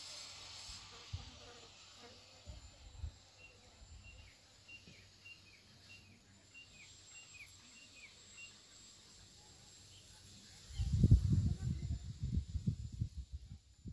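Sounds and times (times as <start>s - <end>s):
faint outdoor background: 0.0s - 13.9s
bird chirping: 3.4s - 8.6s.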